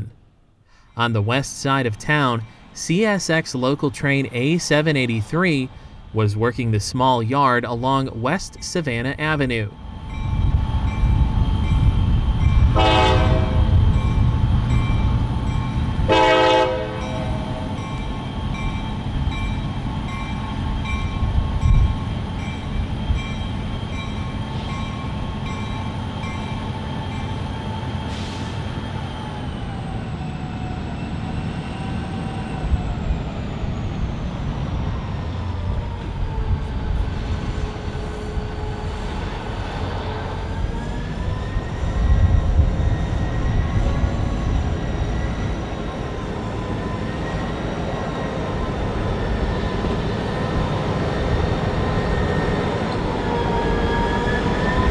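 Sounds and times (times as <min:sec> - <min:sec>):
diesel locomotive engine rumbling: 0:00.0 - 0:54.9
locomotive horn blasts: 0:12.7 - 0:13.8, 0:16.1 - 0:17.4.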